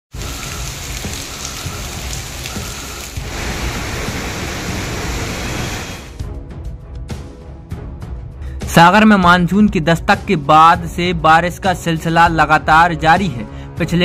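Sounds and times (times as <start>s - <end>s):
heavy rain pouring: 0.1s - 6.2s.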